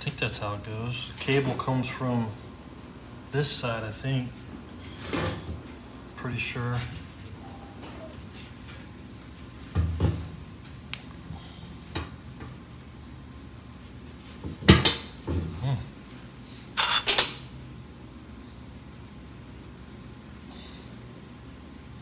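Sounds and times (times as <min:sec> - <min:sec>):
metal parts clinking: 0:16.8 - 0:17.5.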